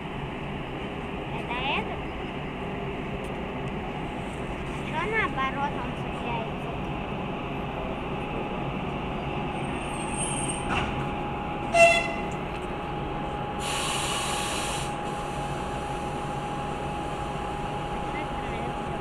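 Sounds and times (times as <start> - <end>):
train low steady rumble: 0.0 - 19.0
air hissing: 13.6 - 16.2.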